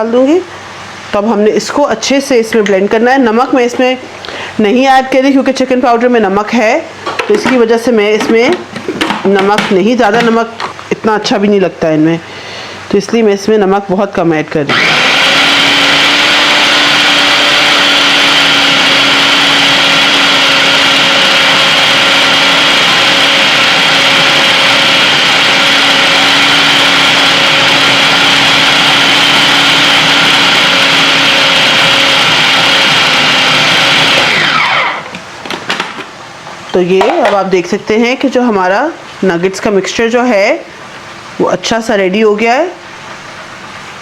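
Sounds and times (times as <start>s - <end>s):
food processor motor running: 14.7s - 35.2s.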